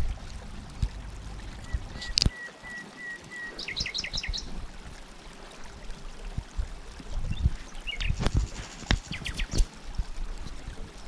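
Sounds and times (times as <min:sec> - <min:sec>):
bird chirping: 0:01.5 - 0:04.5, 0:07.3 - 0:08.2.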